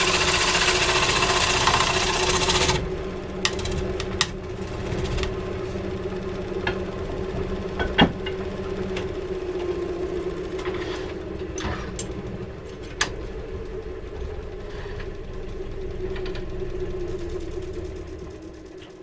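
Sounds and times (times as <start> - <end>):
electric motor humming: 0.0 - 19.0.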